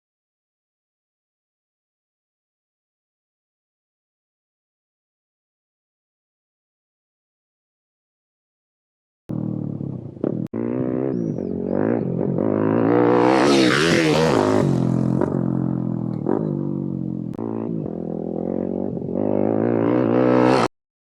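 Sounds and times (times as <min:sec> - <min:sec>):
pit bike engine revving: 0:09.3 - 0:20.7.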